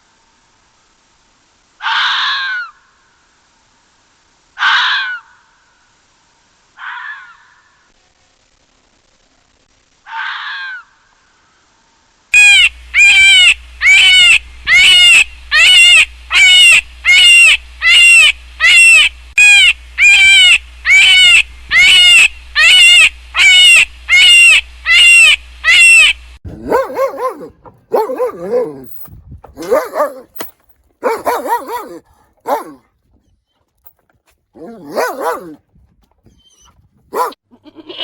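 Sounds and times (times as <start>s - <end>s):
high-pitched animal call: 12.4s - 28.9s, 29.6s - 30.3s, 31.0s - 32.8s, 34.6s - 35.6s, 36.4s - 38.0s
lower-pitched animal call: 12.4s - 28.9s, 29.6s - 30.3s, 31.0s - 32.8s, 34.6s - 35.6s, 36.4s - 38.0s.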